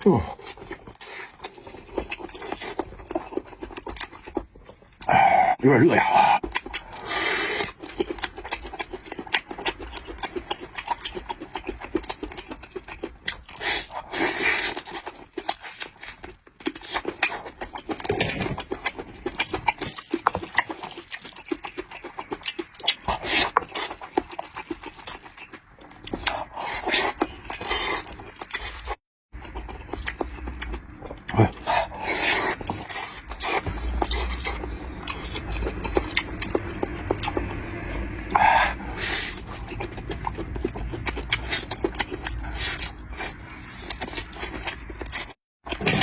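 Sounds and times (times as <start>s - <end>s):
person chewing and lip-smacking: 0.0s - 46.0s.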